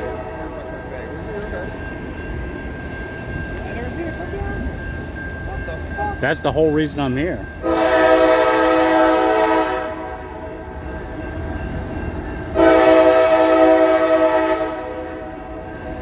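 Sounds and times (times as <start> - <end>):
locomotive air horn blasts: 7.6 - 10.5, 12.6 - 15.4.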